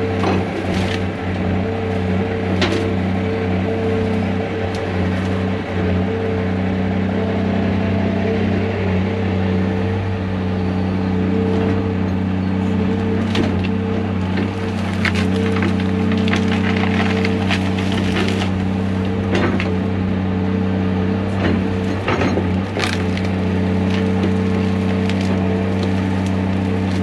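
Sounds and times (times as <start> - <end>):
wood cracking and splintering: 0.0 - 6.0, 13.0 - 20.0, 21.2 - 27.0
diesel engine running under load: 0.0 - 27.0.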